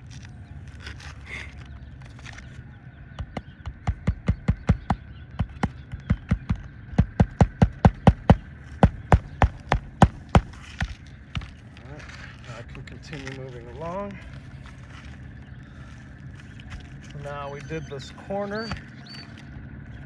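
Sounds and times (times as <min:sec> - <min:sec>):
hammer driving nails into shingles: 0:03.2 - 0:11.5.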